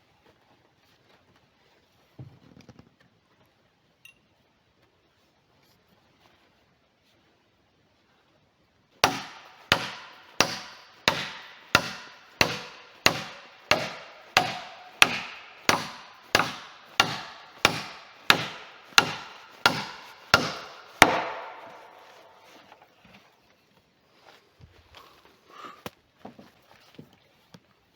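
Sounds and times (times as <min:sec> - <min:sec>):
hand tool striking wood: 0:09.0 - 0:22.8.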